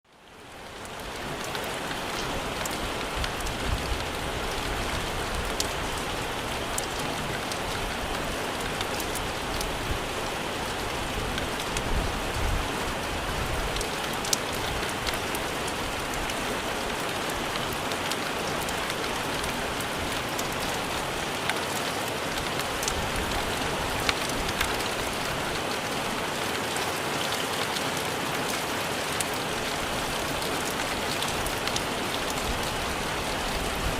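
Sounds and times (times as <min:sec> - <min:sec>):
heavy rain falling on the sea: 0:00.1 - 0:33.9
low rumbling wind gusts: 0:02.3 - 0:16.5.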